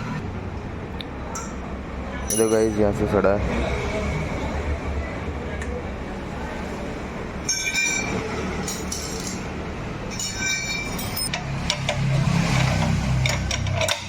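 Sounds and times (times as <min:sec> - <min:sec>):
metal tools clinking: 0:01.3 - 0:03.1, 0:07.4 - 0:14.0.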